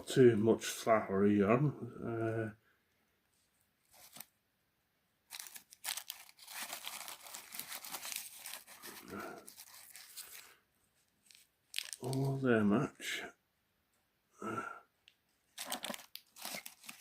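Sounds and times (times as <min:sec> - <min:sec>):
plastic packaging crinkling: 0:03.9 - 0:04.3, 0:05.3 - 0:10.6, 0:11.2 - 0:12.4, 0:15.5 - 0:17.0.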